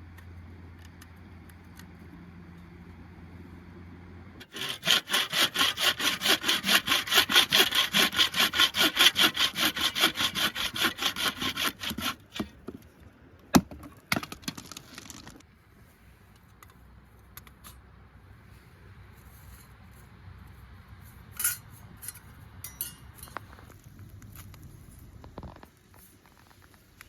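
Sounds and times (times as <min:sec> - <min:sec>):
hand saw cutting wood: 0:04.4 - 0:12.6.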